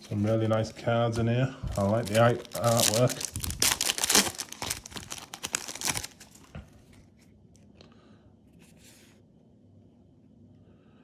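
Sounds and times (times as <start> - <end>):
cards rustling: 0.1 - 7.0
foil wrapper crinkling and tearing: 1.7 - 6.6.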